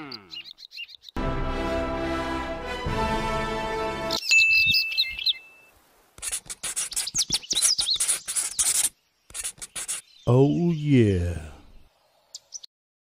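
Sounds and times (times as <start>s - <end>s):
birds chirping and whistling: 0.2s - 1.2s, 4.1s - 5.7s, 6.9s - 8.9s
music: 1.2s - 4.2s
pencil scratching on paper: 6.2s - 10.1s.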